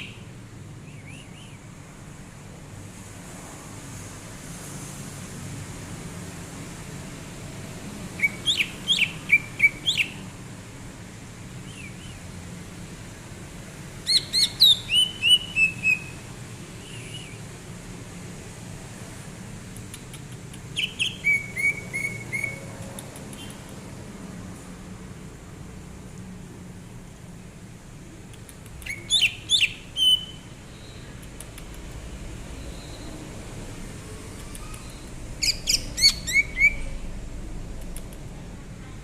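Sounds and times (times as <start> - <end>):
low background noise: 0.0 - 39.0
bird singing whistled notes: 0.8 - 1.6, 8.2 - 10.2, 14.1 - 16.2, 16.8 - 17.5, 20.8 - 22.6, 28.8 - 31.0, 32.6 - 33.2, 34.7 - 37.0.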